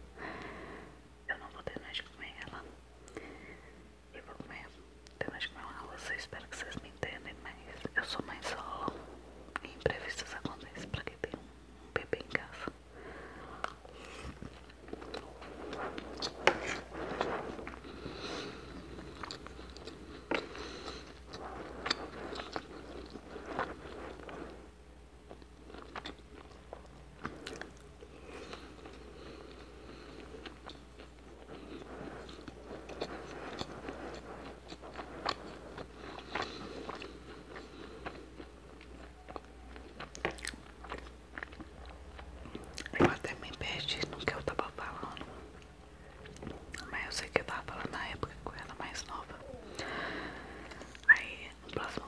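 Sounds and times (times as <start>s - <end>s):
chewing with wet mouth sounds: 13.6s - 24.6s, 25.2s - 43.0s, 44.9s - 47.0s.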